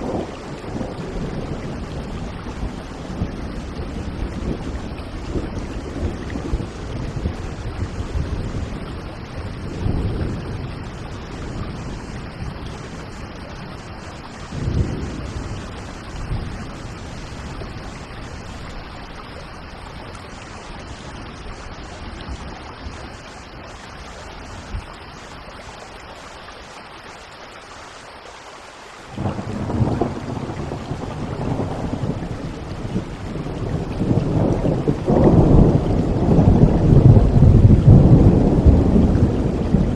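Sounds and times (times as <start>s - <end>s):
rolling thunder: 0.0s - 18.7s, 29.1s - 39.9s
steady rain: 0.0s - 39.9s.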